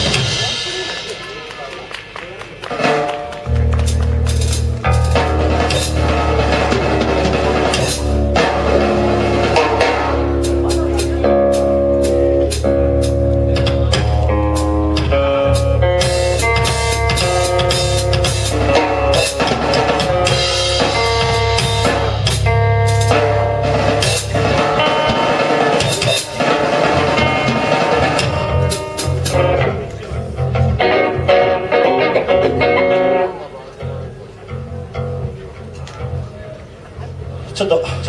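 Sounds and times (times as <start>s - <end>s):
drum kit kick and snare: 0.0s - 29.7s
live band playing: 0.0s - 38.0s.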